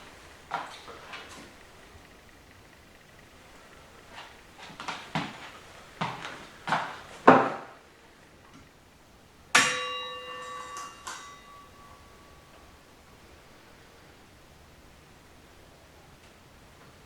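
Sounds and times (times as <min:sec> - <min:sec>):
metal part ringing: 0:09.6 - 0:12.8.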